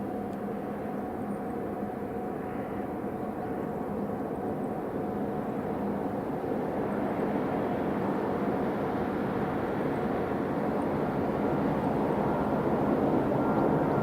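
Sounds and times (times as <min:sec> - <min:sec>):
jet engines rushing drone: 0:05.2 - 0:14.0.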